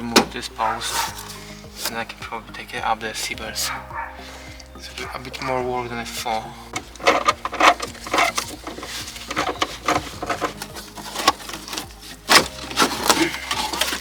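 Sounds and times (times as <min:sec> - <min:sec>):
car interior trim being pried off: 0:06.7 - 0:14.0.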